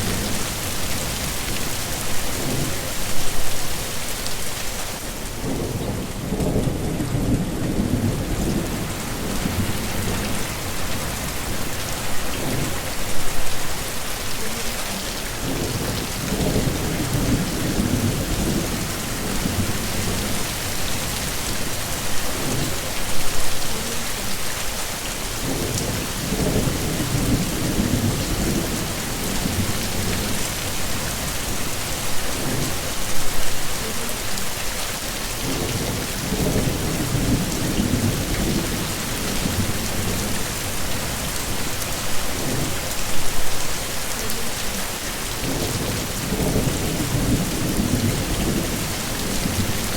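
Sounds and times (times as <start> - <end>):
heavy rain: 0.0 - 49.9
thunder rumbling: 5.2 - 11.7, 15.4 - 23.4.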